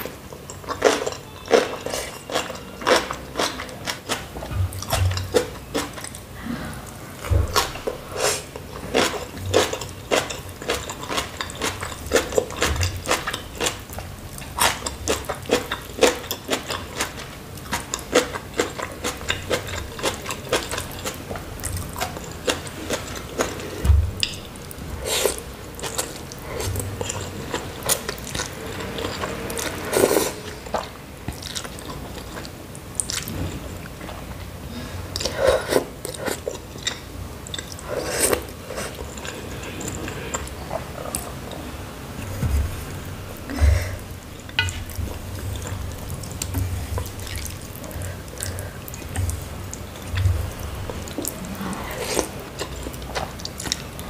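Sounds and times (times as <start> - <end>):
crunchy wet chewing: 7.4 - 33.4, 43.4 - 54.0.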